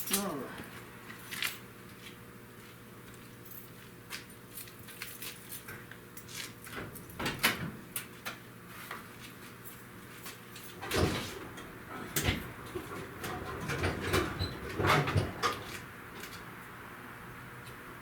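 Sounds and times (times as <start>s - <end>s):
clicks knocks and rattles: 10.8s - 16.4s.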